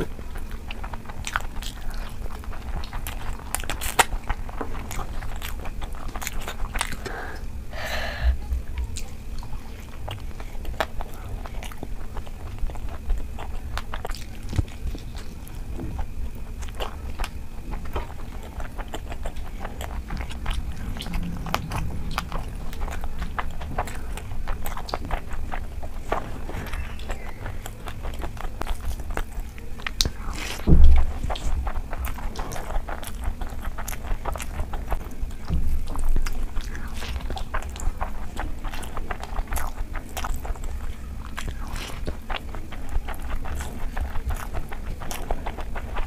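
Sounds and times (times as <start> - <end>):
close chewing: 0.0 - 46.0
mouth clicks and smacks: 16.6 - 46.0.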